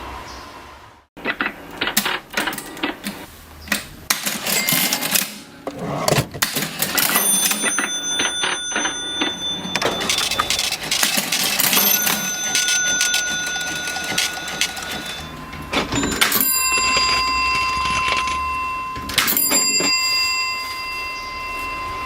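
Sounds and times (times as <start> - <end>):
cash register keys clattering: 4.1 - 18.5, 19.1 - 20.2
cash register bell ringing: 4.2 - 22.0.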